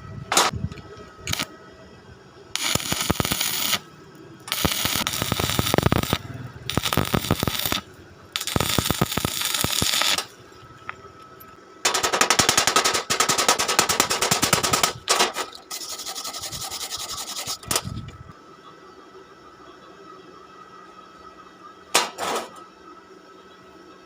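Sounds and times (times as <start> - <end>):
welding arc crackling: 1.2 - 1.5, 2.5 - 17.9.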